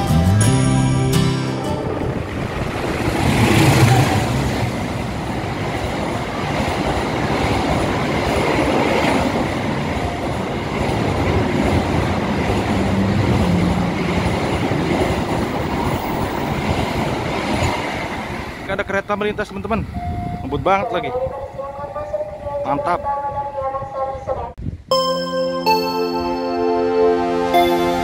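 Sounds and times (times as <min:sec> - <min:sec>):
diesel locomotive passing: 0:01.5 - 0:24.6
train coaches rolling by: 0:01.7 - 0:23.6.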